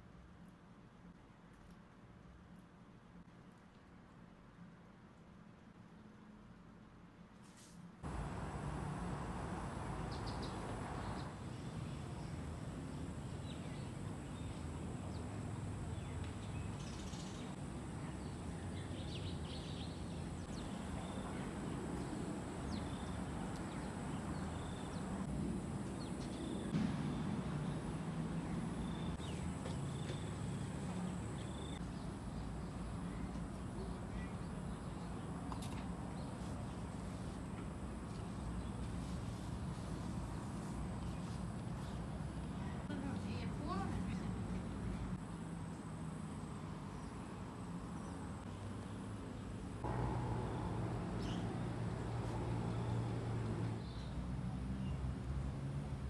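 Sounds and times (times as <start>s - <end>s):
low background rumble: 49.7s - 53.9s.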